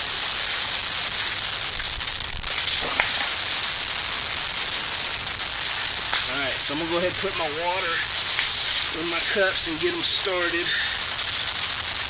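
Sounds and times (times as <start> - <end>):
fire hissing and crackling: 0.0 - 12.0
sharp pop of fire: 1.3 - 6.4, 8.2 - 8.9.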